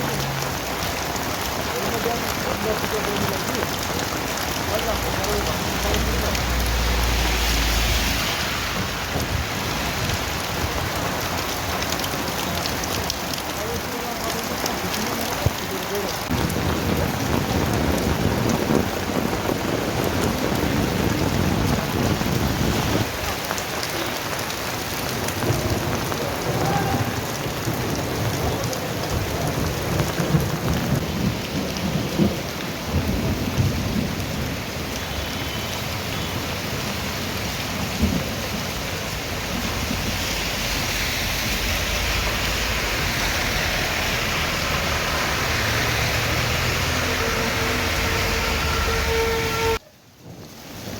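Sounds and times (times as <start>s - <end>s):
steady rain: 0.0s - 50.9s
rolling thunder rumbling: 16.3s - 23.2s.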